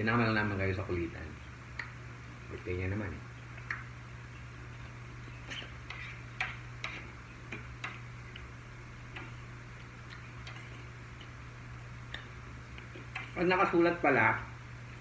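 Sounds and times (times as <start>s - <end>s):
steady low hum: 0.0s - 15.0s
eating clicks and taps: 1.7s - 2.7s, 3.5s - 3.9s, 4.7s - 8.5s, 9.1s - 11.4s, 12.1s - 13.4s.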